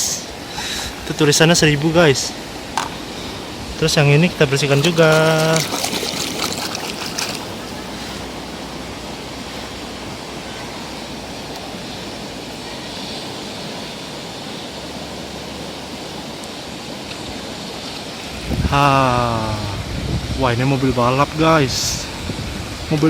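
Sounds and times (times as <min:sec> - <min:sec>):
running water rushing: 0:00.0 - 0:23.0.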